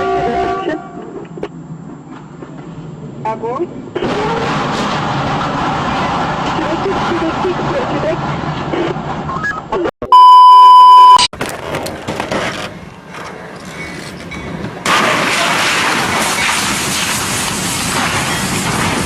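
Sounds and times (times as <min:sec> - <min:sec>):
outdoor footage noise: 0:00.0 - 0:10.3, 0:11.1 - 0:19.0
censor bleep: 0:10.0 - 0:11.3.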